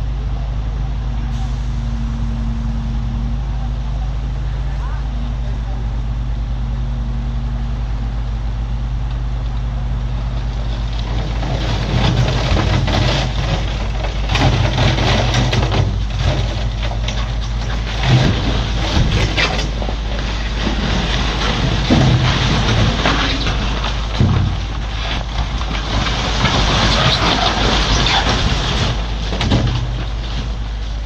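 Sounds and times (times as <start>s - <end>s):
diesel machinery running: 0.0s - 31.0s
rattling and scraping: 9.4s - 31.0s.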